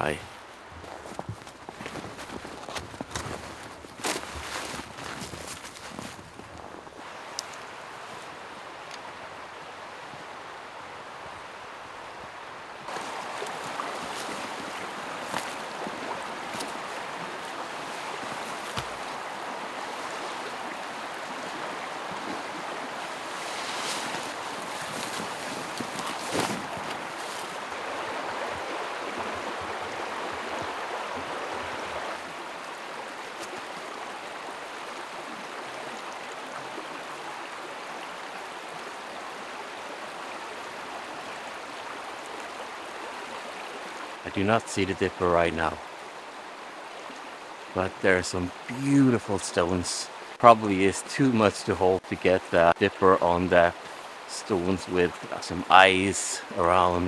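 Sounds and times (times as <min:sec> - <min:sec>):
faint clicks: 0:07.3 - 0:07.7
river rushing over stones: 0:12.7 - 0:57.0.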